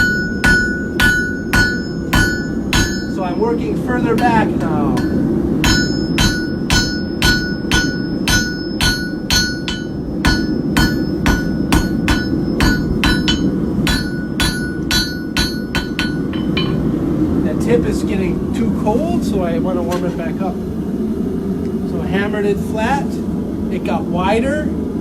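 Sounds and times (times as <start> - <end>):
hammer striking steel on anvil: 0.0 - 3.2, 4.0 - 17.0
low rumble: 0.0 - 25.0.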